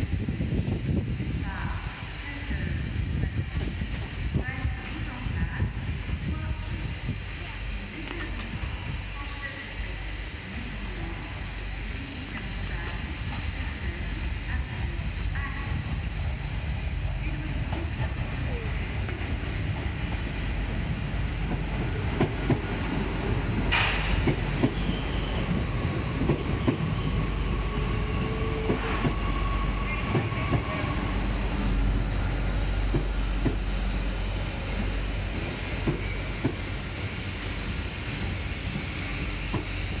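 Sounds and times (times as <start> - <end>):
train rumbling: 0.0 - 40.0
brake squeal: 30.6 - 40.0.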